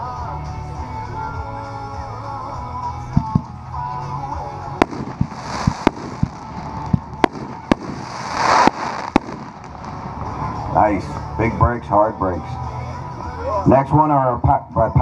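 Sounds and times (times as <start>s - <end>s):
firework bangs: 4.8s - 10.8s
crackling hiss of fireworks: 4.8s - 11.4s.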